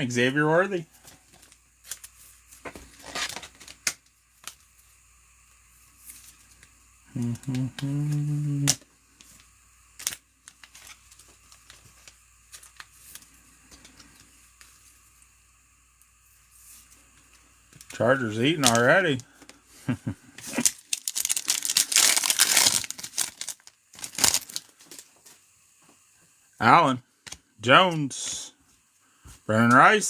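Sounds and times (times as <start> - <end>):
low vocal hum: 7.0 - 8.9.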